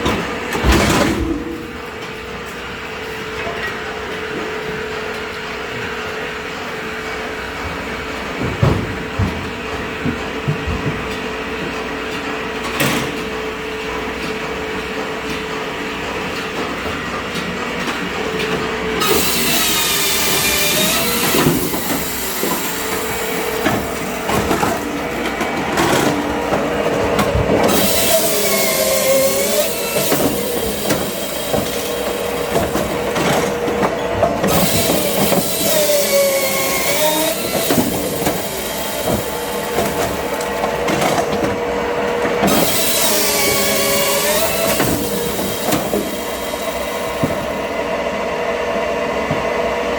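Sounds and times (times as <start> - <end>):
saw blade screeching whine: 19.0 - 25.0, 27.6 - 33.5, 34.4 - 40.7, 42.4 - 47.8
motor hum: 19.0 - 48.0.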